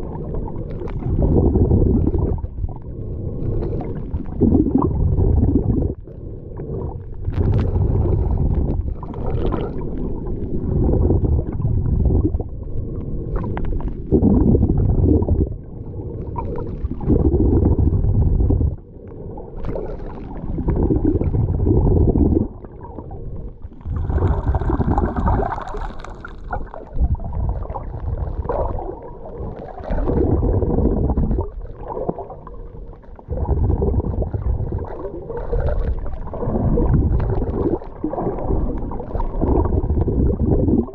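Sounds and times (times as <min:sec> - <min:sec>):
water sloshing and gurgling: 0:00.0 - 0:40.9
water splash: 0:23.8 - 0:27.0.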